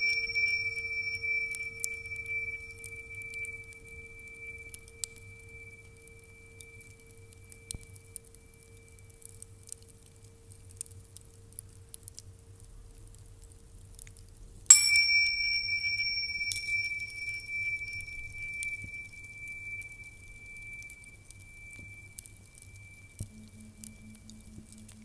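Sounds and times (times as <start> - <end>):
small metal bell ringing: 0.0 - 8.3, 14.7 - 25.0
quiet low hum: 0.0 - 25.0.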